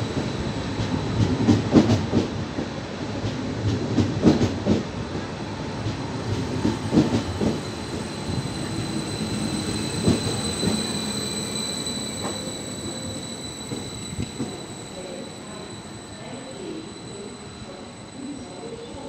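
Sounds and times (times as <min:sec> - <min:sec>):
train rumble: 0:00.0 - 0:19.0
high wheel squeal: 0:07.3 - 0:19.0.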